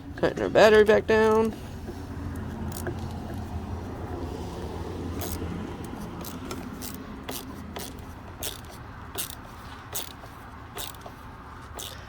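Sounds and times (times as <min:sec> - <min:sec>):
ratchet wrench clicking: 0:02.3 - 0:03.5, 0:05.1 - 0:12.0.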